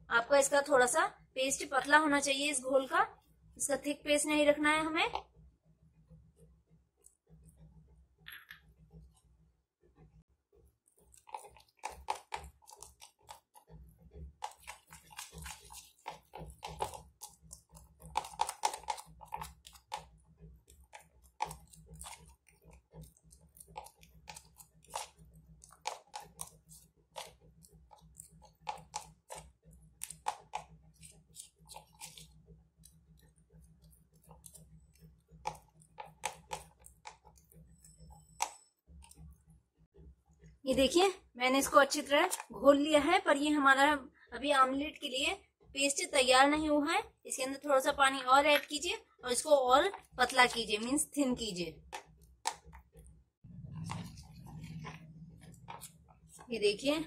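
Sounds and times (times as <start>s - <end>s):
utensil scraping bowl: 10.9s - 39.2s, 53.6s - 56.9s.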